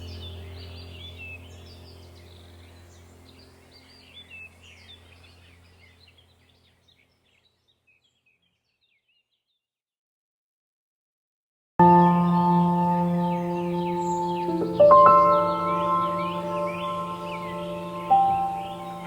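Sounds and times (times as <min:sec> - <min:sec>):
low droning background music: 0:00.0 - 0:06.8, 0:11.8 - 0:19.0
birds chirping and trilling: 0:00.0 - 0:09.6, 0:11.8 - 0:19.0.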